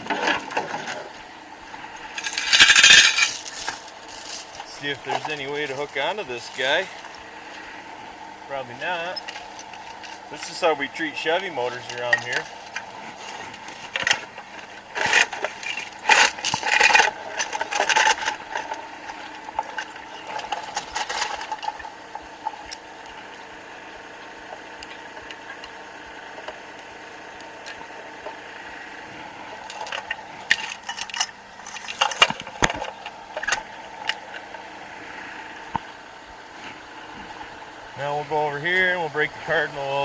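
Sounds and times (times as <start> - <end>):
metal chain clanking: 0.0 - 1.1, 2.1 - 7.2, 8.2 - 23.5, 29.6 - 34.5
diesel engine idling: 0.0 - 40.0.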